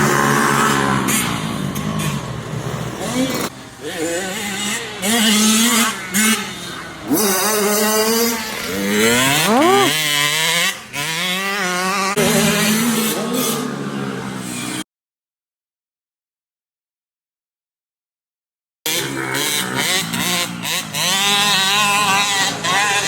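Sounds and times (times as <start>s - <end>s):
motocross bike engines revving: 0.0s - 10.4s, 18.9s - 23.0s.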